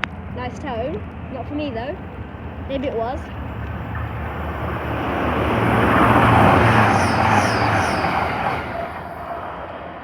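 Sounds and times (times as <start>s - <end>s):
diesel train passing: 1.1s - 10.0s
train wheels on rails: 2.2s - 9.9s.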